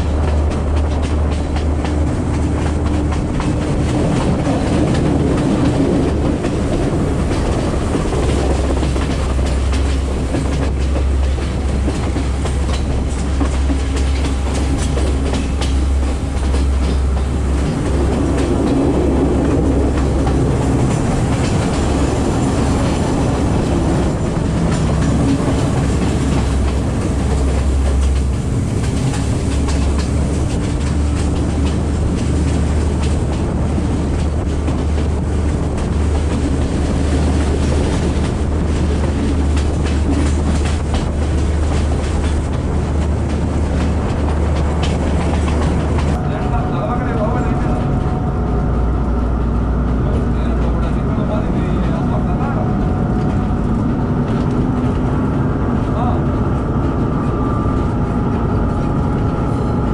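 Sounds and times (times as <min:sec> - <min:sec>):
wheels clicking over rail joints: 0:00.0 - 0:46.3
train rumbling drone: 0:00.0 - 0:59.9.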